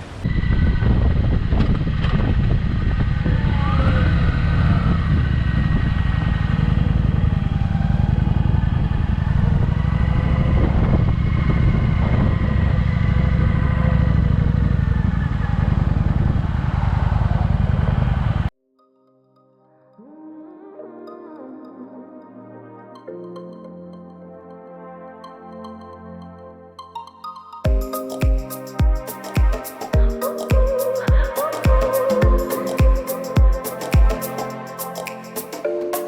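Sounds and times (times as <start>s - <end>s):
motorcycle engine rumbling: 0.0s - 18.5s.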